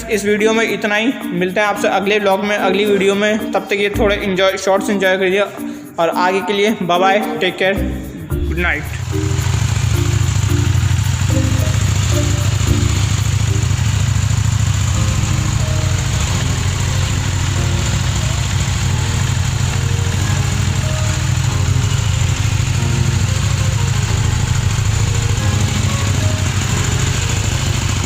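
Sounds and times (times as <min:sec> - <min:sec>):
background music: 0:00.0 - 0:28.0
motorcycle engine idling: 0:08.4 - 0:28.0.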